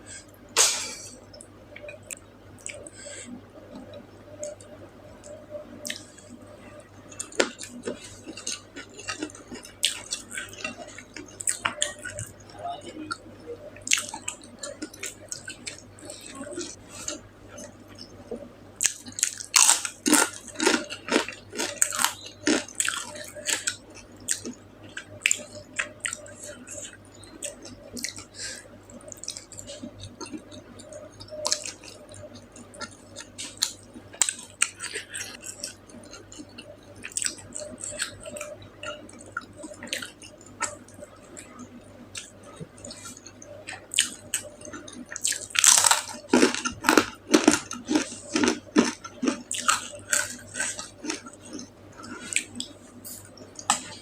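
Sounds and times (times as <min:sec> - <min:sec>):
chewing food: 0:01.3 - 0:54.0.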